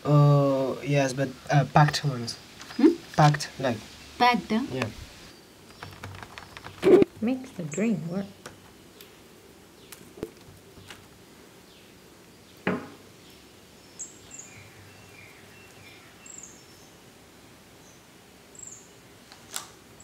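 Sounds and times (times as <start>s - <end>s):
small birds chirping: 0.0s - 19.5s
sharp knock: 12.7s - 13.0s.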